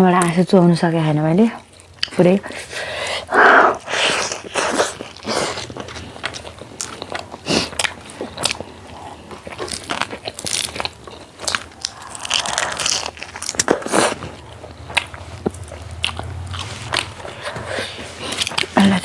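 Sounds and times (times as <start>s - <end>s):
crunchy bites and chewing: 3.8s - 18.8s.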